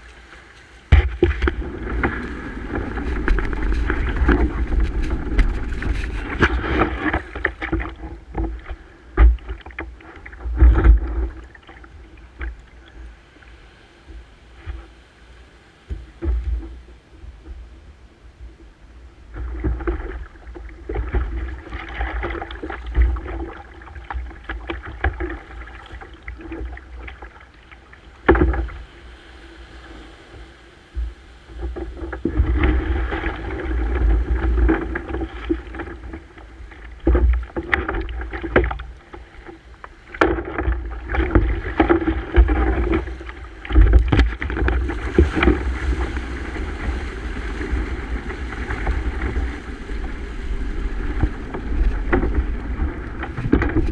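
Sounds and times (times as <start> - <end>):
water splashing around kayak: 0.0 - 53.9
heavy low rumble: 1.4 - 6.9.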